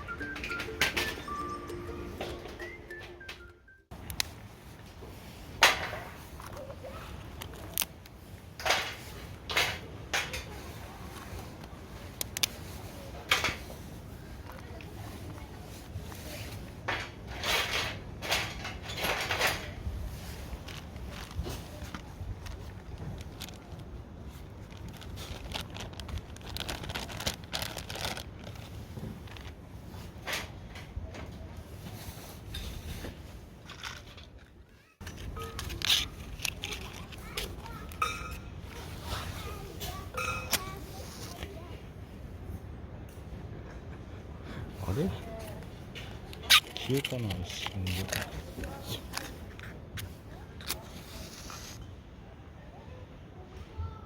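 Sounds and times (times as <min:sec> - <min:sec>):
low background noise: 0:00.0 - 0:54.0
crinkling and rustling: 0:02.2 - 0:42.2, 0:44.8 - 0:51.9
sharp clacks of objects handled: 0:33.6 - 0:41.6, 0:45.5 - 0:51.0.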